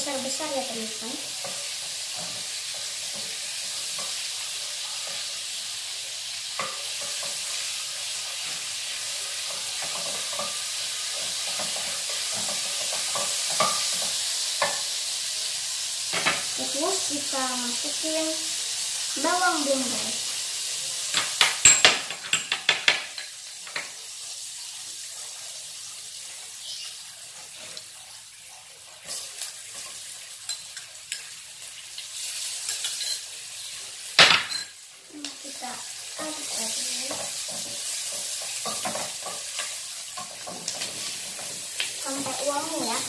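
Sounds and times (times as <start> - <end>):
spatula stirring in a pan: 0.0 - 15.9, 23.2 - 34.1, 35.4 - 43.0
onion sizzling in a frying pan: 0.0 - 43.0.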